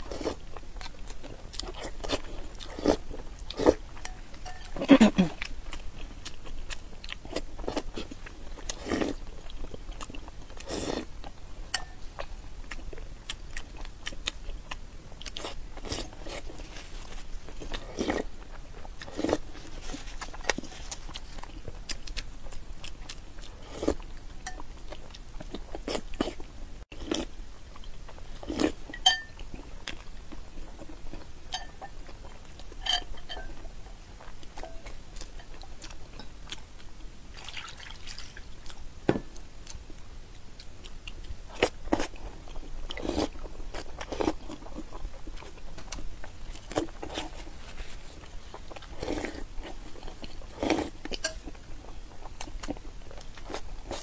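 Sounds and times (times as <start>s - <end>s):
biting and chewing: 0.0s - 54.0s
spoon clinking on ceramic bowl: 4.0s - 4.8s, 29.0s - 29.4s, 31.5s - 32.0s, 32.8s - 33.6s.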